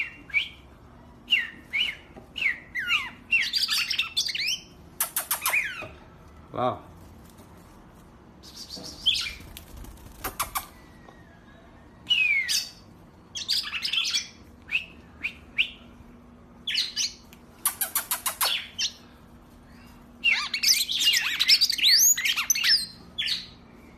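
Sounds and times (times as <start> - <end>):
songbird singing: 0.0 - 6.0, 10.4 - 16.0.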